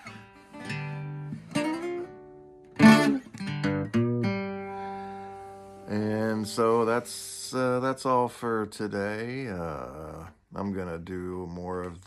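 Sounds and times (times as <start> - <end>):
strummed string instrument chords: 0.0 - 7.7.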